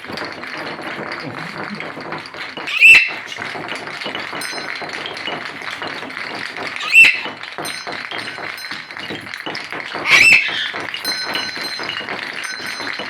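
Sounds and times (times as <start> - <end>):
rapid tapping and clicking: 0.0 - 13.0
macaw squawk: 2.7 - 3.4, 6.8 - 7.4, 10.0 - 10.8.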